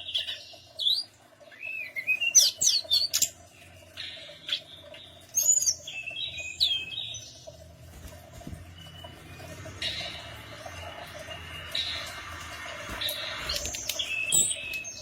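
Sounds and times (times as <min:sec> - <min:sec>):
bird chirping and whistling: 0:08.8 - 0:15.0.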